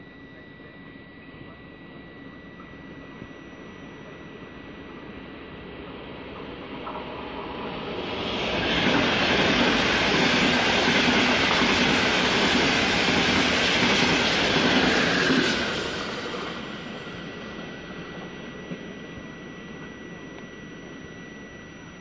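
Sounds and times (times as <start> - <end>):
train passing at speed: 4.9 - 20.4.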